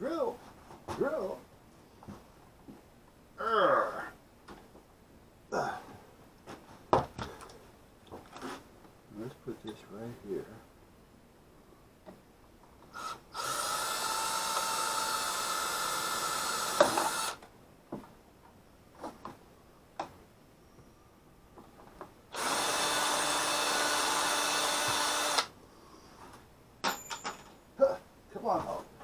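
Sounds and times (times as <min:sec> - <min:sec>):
power drill drilling: 0:13.0 - 0:17.4, 0:22.3 - 0:25.5.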